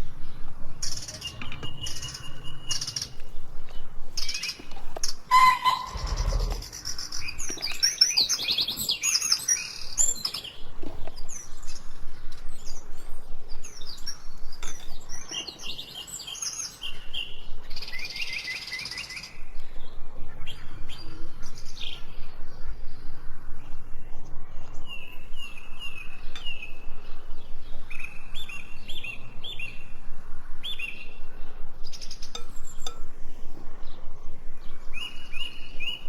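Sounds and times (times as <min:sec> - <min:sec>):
birds chirping and singing: 0:00.0 - 0:36.0.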